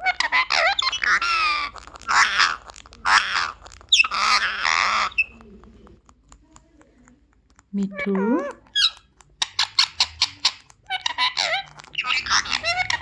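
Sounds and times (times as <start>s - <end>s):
parrot calling loudly: 0.0s - 5.3s, 7.9s - 13.0s.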